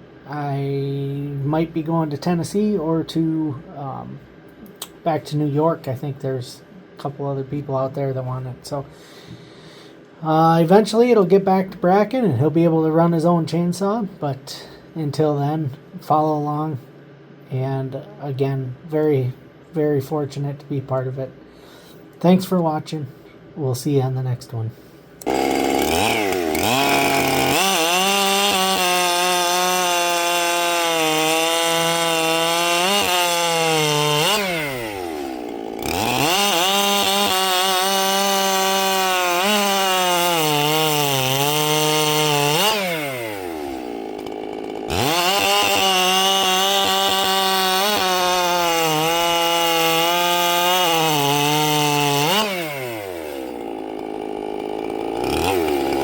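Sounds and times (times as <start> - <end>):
chainsaw revving and cutting wood: 25.2 - 56.0.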